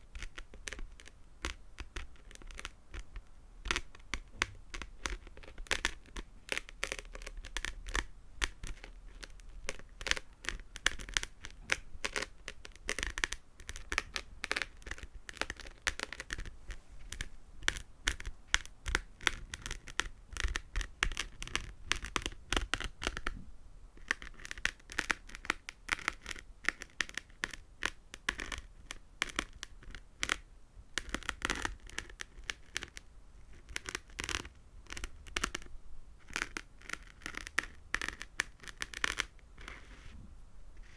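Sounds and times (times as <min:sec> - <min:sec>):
fingernails tapping and scratching: 0:00.0 - 0:23.4, 0:31.0 - 0:40.0.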